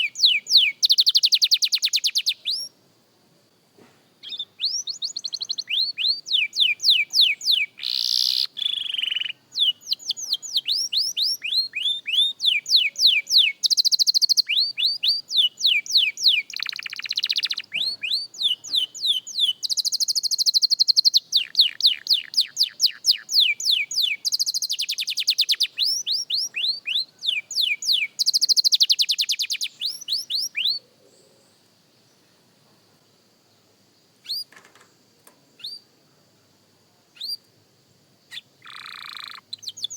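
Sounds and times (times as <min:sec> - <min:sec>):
canary singing with trills: 0:00.0 - 0:02.7, 0:04.2 - 0:30.8, 0:34.2 - 0:34.5, 0:35.6 - 0:35.9, 0:37.2 - 0:37.5, 0:38.3 - 0:39.9.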